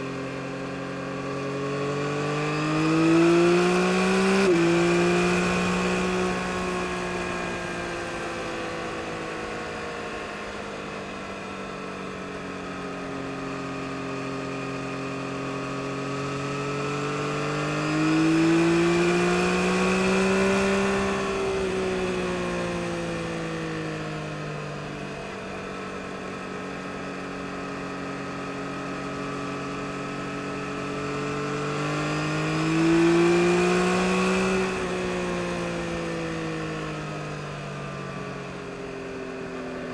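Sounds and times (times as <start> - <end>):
motorcycle engine revving: 0.9 - 10.7, 14.5 - 23.9, 27.9 - 38.0.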